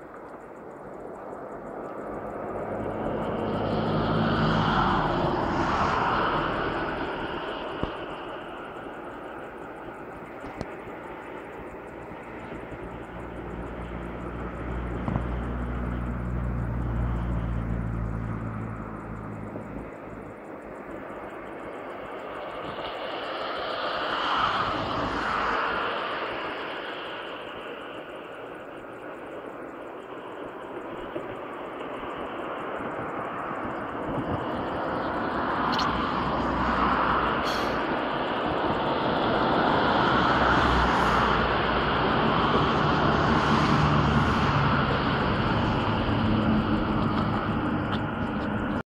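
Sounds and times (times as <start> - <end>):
faint high-pitched ticking: 0.0 - 4.0, 6.4 - 24.0
outdoor background noise: 0.0 - 48.8
passing engine hum: 0.0 - 48.8.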